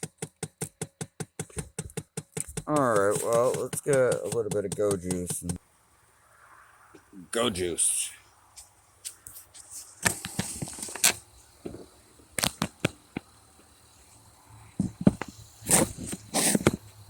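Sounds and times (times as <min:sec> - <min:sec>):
short hissy rushes: 0:15.3 - 0:17.0.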